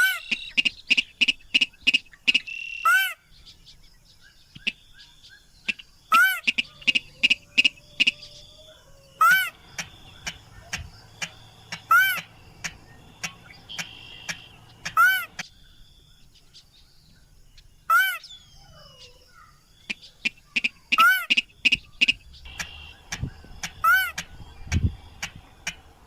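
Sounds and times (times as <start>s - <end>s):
whistled bird calls: 0.0s - 12.3s, 12.9s - 15.7s.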